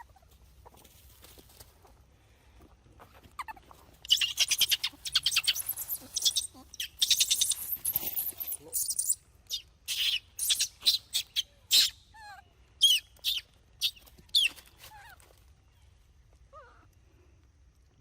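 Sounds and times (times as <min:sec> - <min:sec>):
shrill squeaks and chirps: 0:03.4 - 0:15.2.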